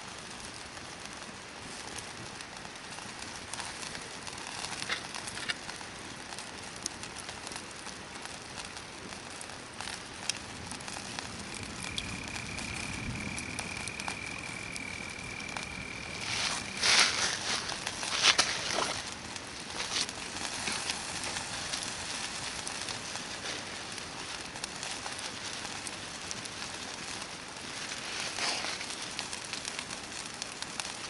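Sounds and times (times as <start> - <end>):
campfire crackling: 0.0 - 31.0
thin high whistle: 11.8 - 18.3.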